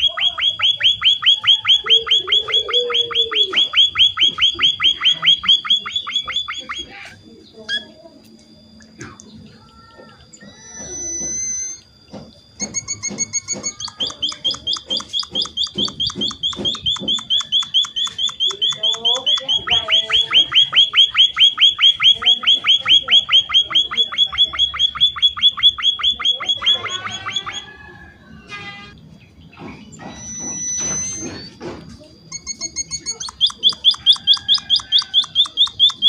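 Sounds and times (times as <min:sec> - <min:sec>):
finch chirping high: 0:00.0 - 0:07.0, 0:10.4 - 0:11.8, 0:12.6 - 0:27.6, 0:29.9 - 0:31.5, 0:32.4 - 0:36.0.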